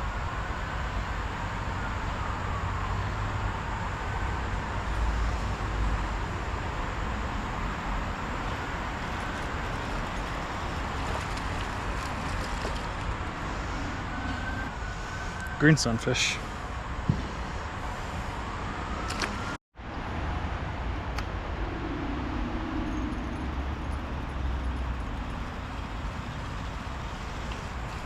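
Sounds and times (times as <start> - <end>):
road traffic noise: 0.0 - 28.0
faint whine sliding in pitch: 21.4 - 28.0.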